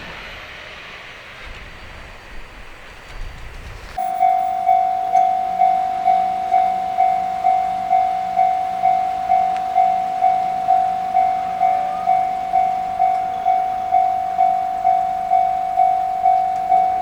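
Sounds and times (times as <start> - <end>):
level crossing warning bell: 4.0 - 17.0.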